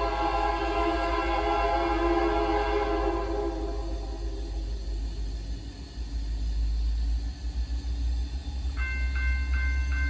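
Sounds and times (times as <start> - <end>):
diesel train rumbling past: 0.0 - 10.0
warning bell ringing: 8.8 - 10.0.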